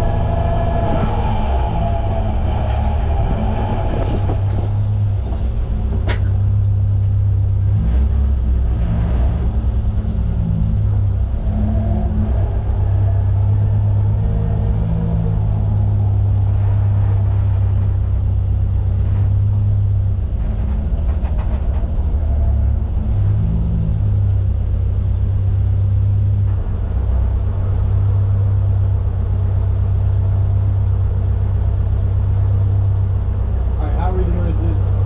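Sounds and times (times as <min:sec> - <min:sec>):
car engine running at low revs: 0:00.0 - 0:35.0.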